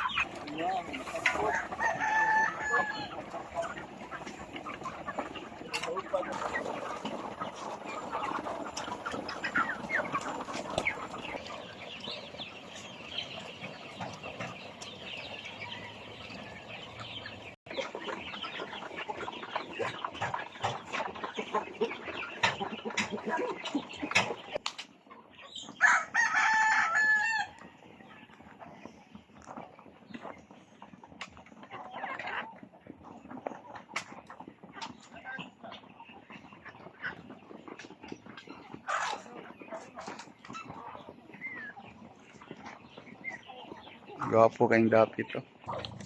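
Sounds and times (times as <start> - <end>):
chickens clucking: 0.0 - 46.0
rooster crowing: 1.5 - 3.1, 25.8 - 27.6.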